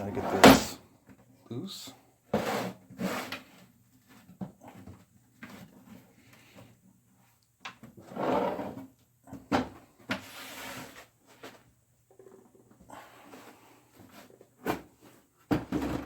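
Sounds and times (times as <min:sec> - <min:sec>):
plastic case scraping: 0:00.0 - 0:00.8.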